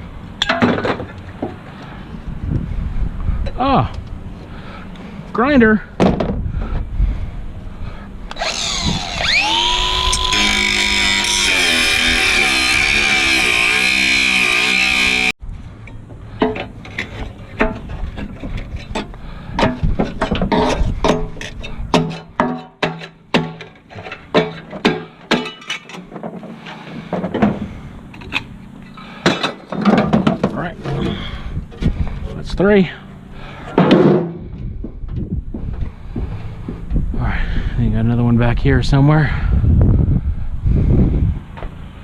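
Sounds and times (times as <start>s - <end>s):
angle grinder whine: 8.3s - 15.4s
metallic clanks on aluminum: 16.4s - 26.3s.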